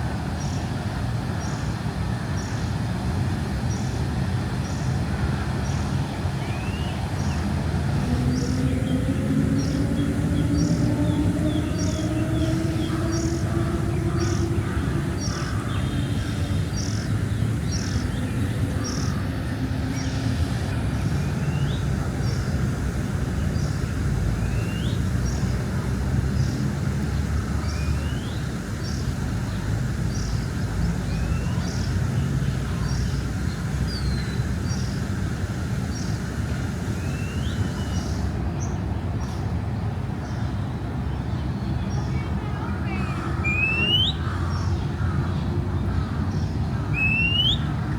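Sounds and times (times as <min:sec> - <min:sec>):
city traffic rumble: 0:00.0 - 0:47.9
bird rising whistled note: 0:47.0 - 0:47.6.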